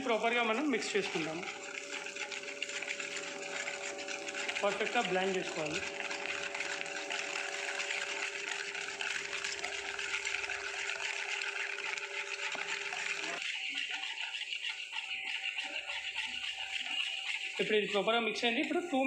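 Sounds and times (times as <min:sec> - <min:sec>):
constant hum: 0:00.0 - 0:13.5
liquid swishing in a bowl: 0:00.0 - 0:19.0.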